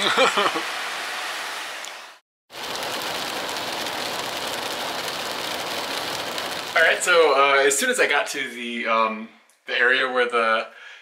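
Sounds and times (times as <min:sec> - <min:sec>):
steady rain patter: 0:02.5 - 0:07.6.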